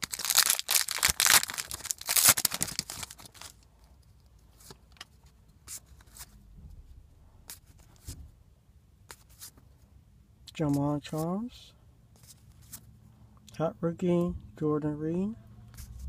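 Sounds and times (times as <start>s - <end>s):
wrapper crinkling: 0.0s - 3.6s.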